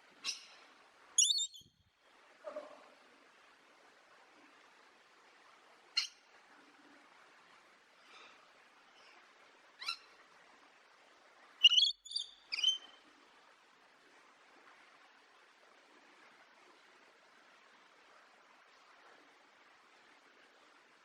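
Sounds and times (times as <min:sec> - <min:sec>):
bird chirping: 0:01.2 - 0:01.7, 0:11.6 - 0:13.0.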